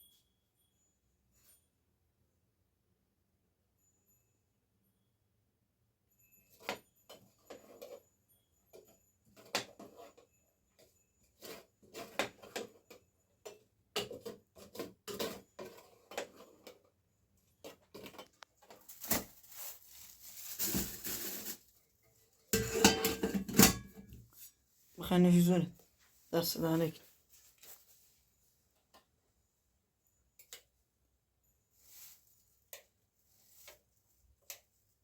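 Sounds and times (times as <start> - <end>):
dishes and utensils clinking: 22.5 - 24.2.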